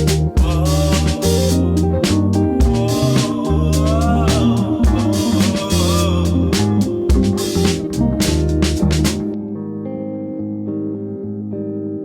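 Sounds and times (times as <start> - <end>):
soul funk background music: 0.0 - 9.4.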